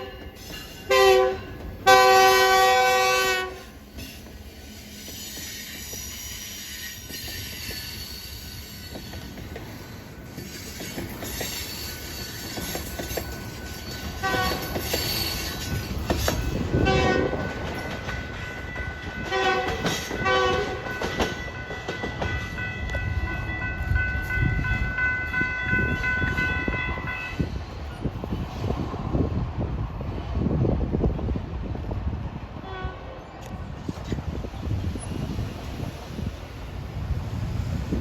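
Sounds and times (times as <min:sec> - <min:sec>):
train horn blasts: 0:00.0 - 0:00.3, 0:00.9 - 0:03.8, 0:14.2 - 0:15.2, 0:16.7 - 0:17.6, 0:19.2 - 0:20.9, 0:32.6 - 0:33.2
freight train wheels rumbling: 0:00.0 - 0:38.0.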